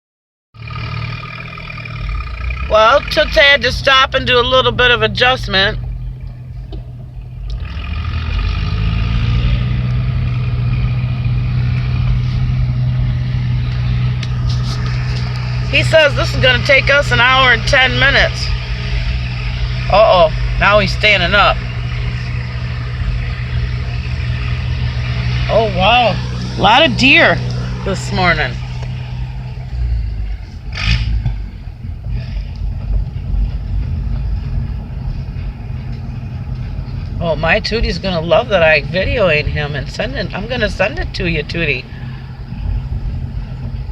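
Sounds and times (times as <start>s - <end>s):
vehicle engine pulling away: 0.6s - 43.9s.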